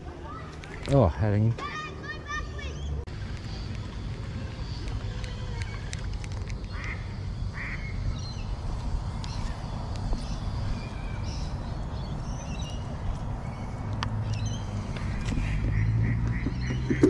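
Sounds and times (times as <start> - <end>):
harsh bird calls: 1.0 - 17.0
high bird chirps: 9.2 - 17.0.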